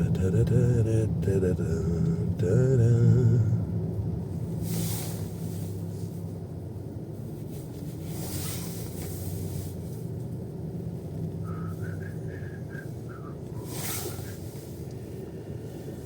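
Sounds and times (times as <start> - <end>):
car cabin engine and road drone: 0.0 - 16.0
passing traffic hiss: 4.4 - 6.6, 7.2 - 16.0.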